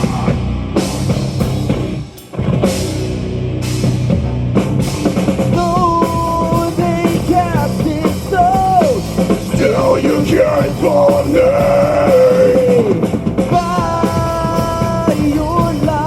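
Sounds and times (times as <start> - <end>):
heavy distorted guitars: 0.0 - 16.0
pounding drum kit: 0.0 - 16.0.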